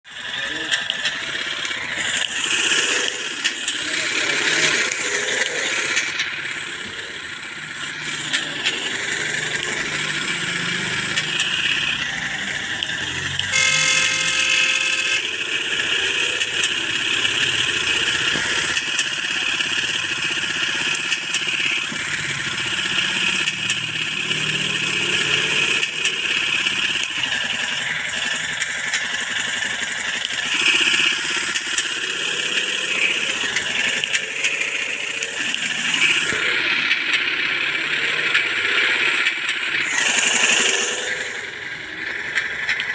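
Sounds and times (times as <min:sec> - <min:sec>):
motorcycle engines revving: 0:00.1 - 0:42.9
steady horn-like tone: 0:13.5 - 0:15.3.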